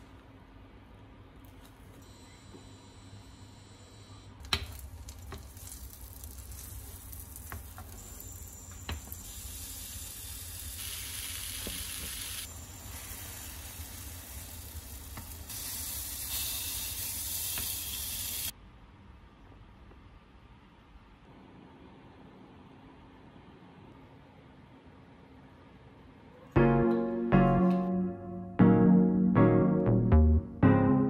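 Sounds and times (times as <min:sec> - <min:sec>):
bread and bananas sizzling: 0:04.6 - 0:18.5.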